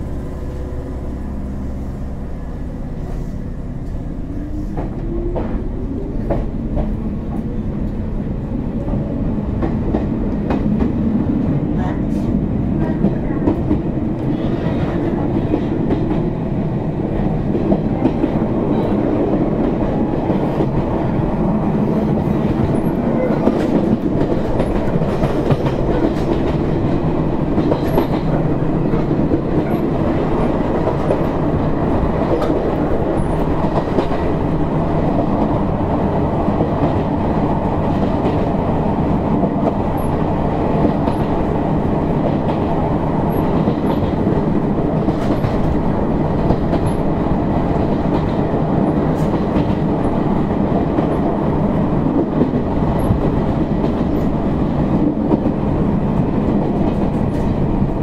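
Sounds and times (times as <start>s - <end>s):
train motors and wheels rumbling: 0.0s - 58.0s
rail joint clicks: 2.5s - 58.0s.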